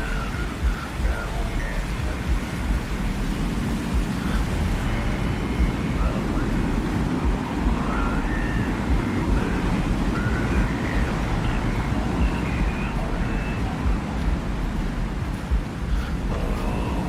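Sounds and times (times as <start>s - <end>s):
low wind rumble: 0.0s - 17.0s
faint high whistling tones: 3.9s - 14.5s.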